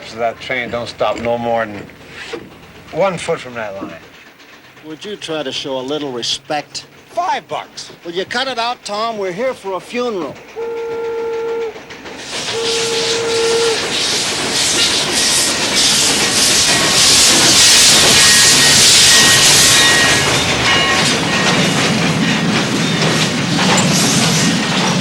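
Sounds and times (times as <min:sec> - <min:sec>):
steam hissing: 0:00.0 - 0:25.0
steam whistle blast: 0:10.6 - 0:11.8, 0:12.4 - 0:14.0, 0:17.6 - 0:20.2
thin high squeals: 0:16.6 - 0:21.0.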